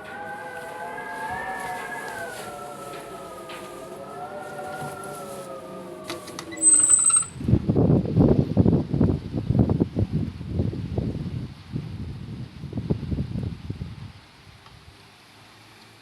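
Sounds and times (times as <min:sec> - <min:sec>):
tornado warning siren wailing: 0:00.0 - 0:07.6
wind gusts on microphone: 0:04.4 - 0:15.0
brief high-pitched squeal: 0:06.2 - 0:07.4.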